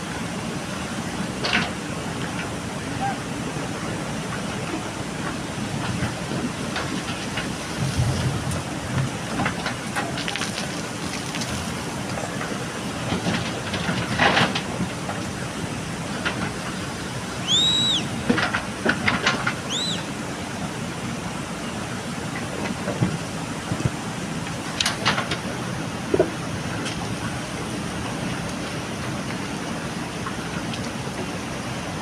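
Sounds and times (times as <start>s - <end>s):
diesel engine under load: 0.0s - 32.0s
gravel clattering: 4.3s - 20.1s.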